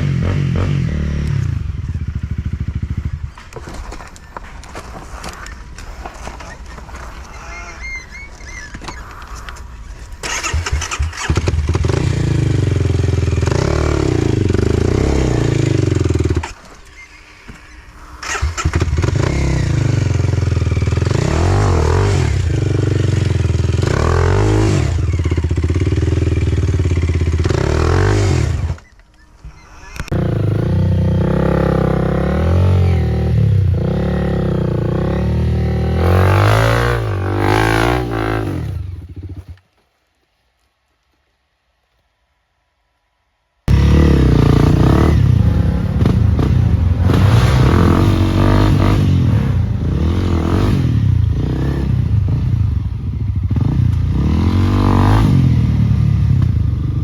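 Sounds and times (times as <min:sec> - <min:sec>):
dirt bike engine revving: 0:00.0 - 0:03.5, 0:10.2 - 0:28.9, 0:29.6 - 0:39.6, 0:43.7 - 0:57.0.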